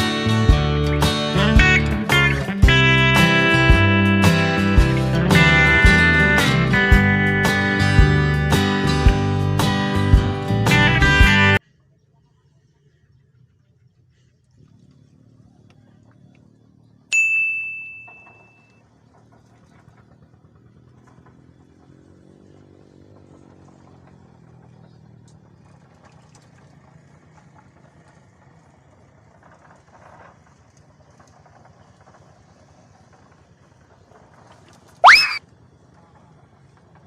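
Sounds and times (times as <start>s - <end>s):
sharp metallic ding: 17.1s - 18.7s.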